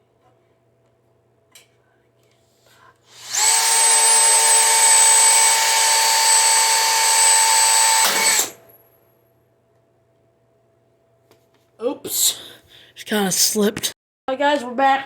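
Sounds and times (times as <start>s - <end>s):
electric drill motor whining: 3.1s - 8.6s.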